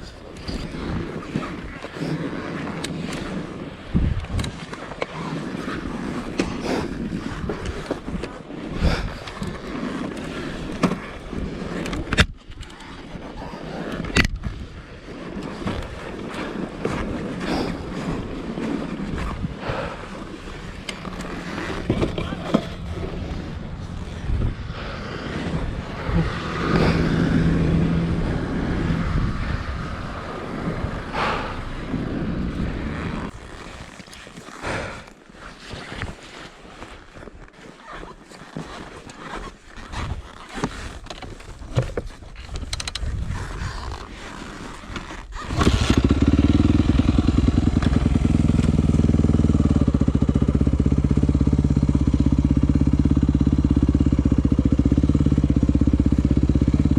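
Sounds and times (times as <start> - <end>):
wind on microphone: 0.0 - 35.1, 39.8 - 56.9
dirt bike engine running: 17.6 - 33.6, 45.5 - 56.9.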